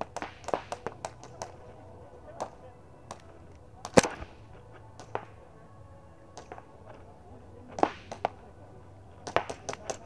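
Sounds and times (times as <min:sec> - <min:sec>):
airsoft gun shots: 0:00.0 - 0:01.5, 0:03.8 - 0:04.3, 0:07.8 - 0:08.4, 0:09.2 - 0:10.0.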